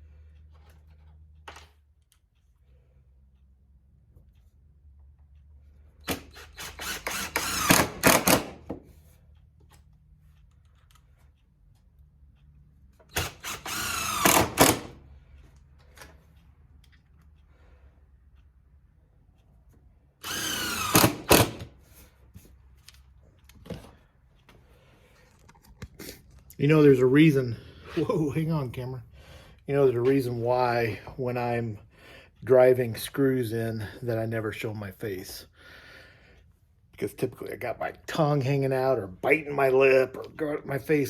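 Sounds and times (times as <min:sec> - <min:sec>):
power drill driving screws: 0:06.0 - 0:08.7, 0:13.1 - 0:15.0, 0:20.2 - 0:21.7.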